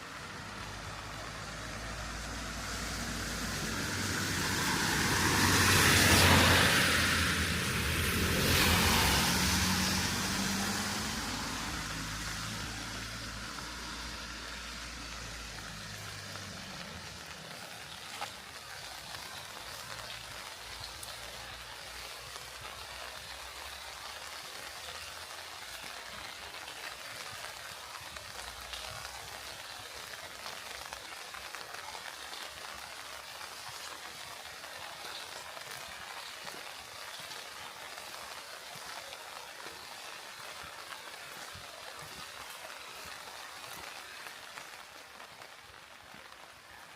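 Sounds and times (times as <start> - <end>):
vehicle engine hum: 0.0 - 21.8
steady rain falling: 0.0 - 46.9.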